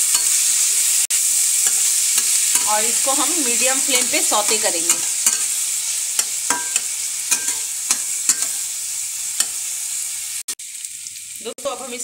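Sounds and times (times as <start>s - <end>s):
vegetables sizzling in oil: 0.0s - 12.0s
spatula scraping a pan: 1.3s - 9.7s.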